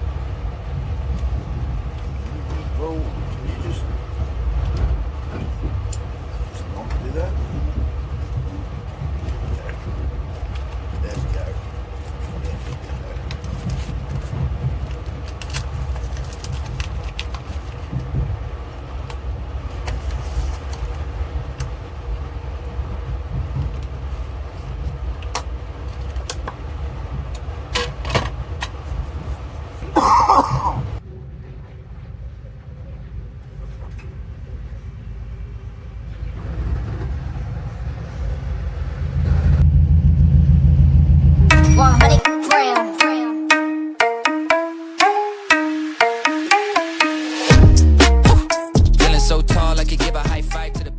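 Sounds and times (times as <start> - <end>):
train rumbling: 0.0 - 42.3
deep drone: 39.1 - 42.2
short high-pitched sound: 41.5 - 49.4.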